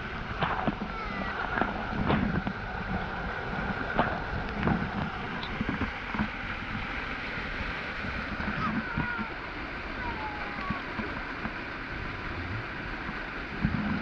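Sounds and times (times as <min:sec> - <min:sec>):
waterfall rushing: 0:06.3 - 0:14.0.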